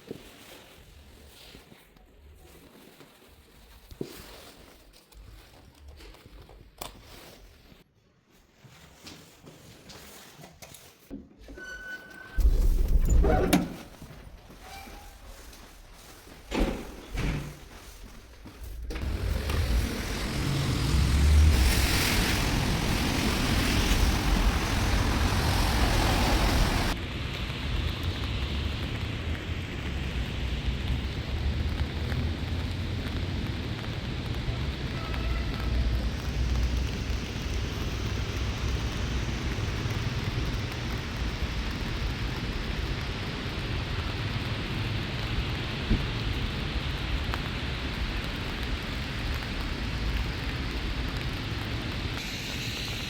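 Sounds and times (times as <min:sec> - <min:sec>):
low rumble: 0:12.4 - 0:15.5
road traffic rumble: 0:18.6 - 0:53.0
car tyres hissing on wet road: 0:18.9 - 0:53.0.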